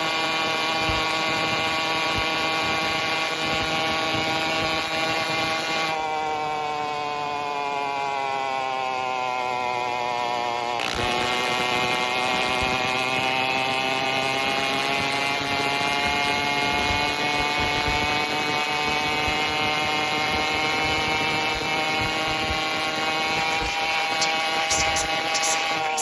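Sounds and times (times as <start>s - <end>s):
two-stroke engine running: 11.0s - 26.0s.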